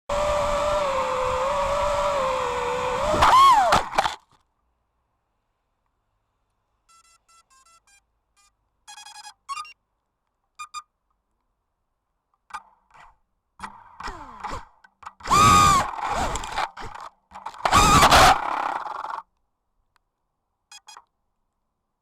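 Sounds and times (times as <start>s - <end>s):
drone motors spinning up: 0.1s - 4.2s, 13.6s - 19.2s
electronic beeps through motors: 6.9s - 9.8s, 20.7s - 21.0s.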